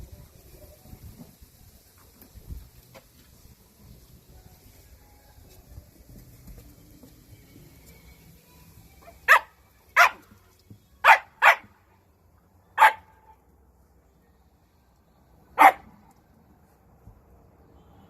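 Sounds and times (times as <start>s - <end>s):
dog barking: 9.3s - 10.2s, 11.0s - 11.7s, 12.8s - 13.4s, 15.6s - 16.0s.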